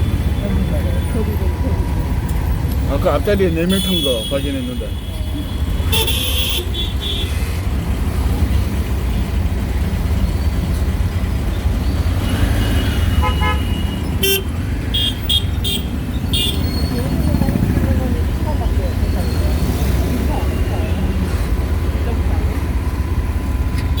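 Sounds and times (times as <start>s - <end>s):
auto-rickshaw engine rumbling: 0.0s - 24.0s
vehicle horns beeping: 3.5s - 7.5s, 12.1s - 17.3s, 23.8s - 24.0s.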